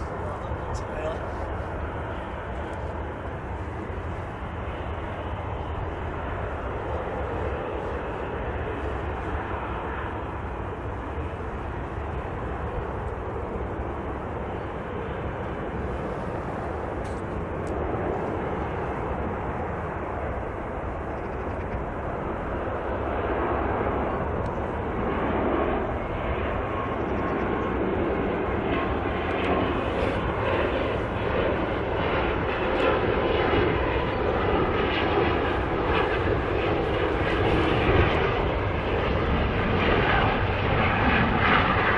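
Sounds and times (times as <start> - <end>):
turboprop engines running: 0.0 - 41.9.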